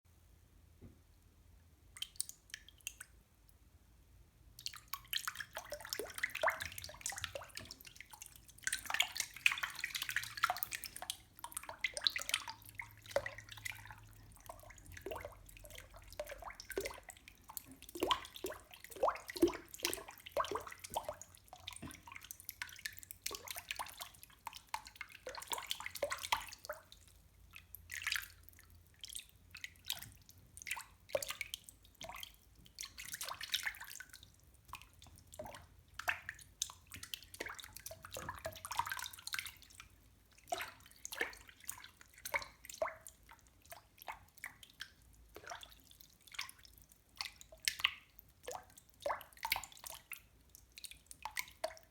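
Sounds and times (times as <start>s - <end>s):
water dripping and splashing: 1.9s - 3.2s, 4.6s - 51.9s.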